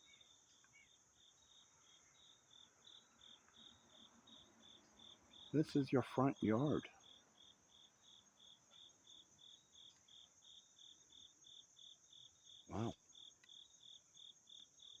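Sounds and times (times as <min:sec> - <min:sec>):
insects chirping: 0:00.0 - 0:15.0
brief voice-like sound: 0:12.7 - 0:13.0.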